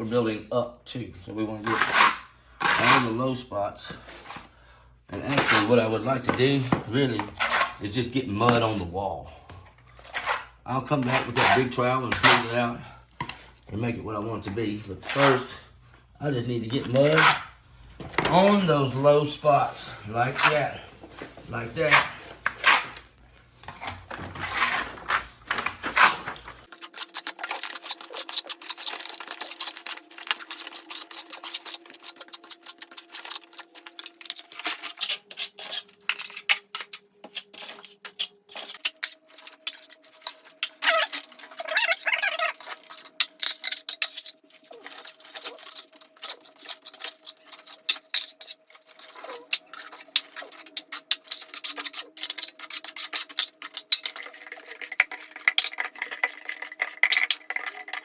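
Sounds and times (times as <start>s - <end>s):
trowel scraping and tapping: 26.0s - 58.0s.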